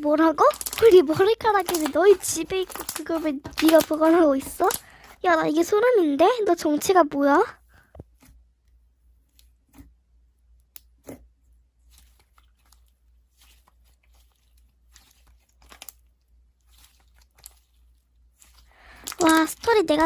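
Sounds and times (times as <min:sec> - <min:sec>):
slime sticky clicks and crackles: 0:15.0 - 0:16.0, 0:16.7 - 0:17.7.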